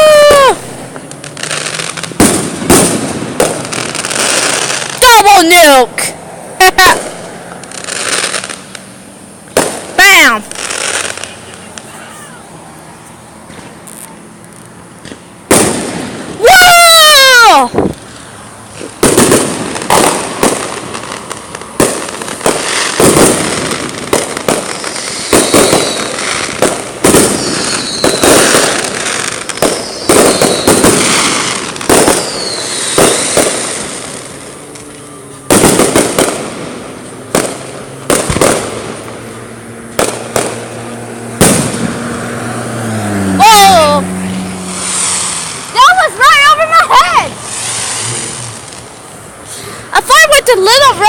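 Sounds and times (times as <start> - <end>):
falling firework whistles: 0.0 - 5.1, 7.0 - 42.1, 44.4 - 50.0
fireworks bangs: 0.0 - 51.0
fireworks crackling: 0.0 - 51.0.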